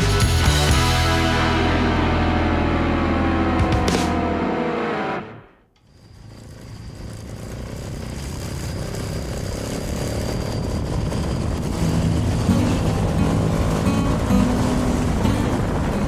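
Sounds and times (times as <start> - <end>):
motorcycle engine: 0.0 - 5.6, 6.2 - 15.9
low steady hum: 1.0 - 5.5
wind rush: 10.7 - 16.0.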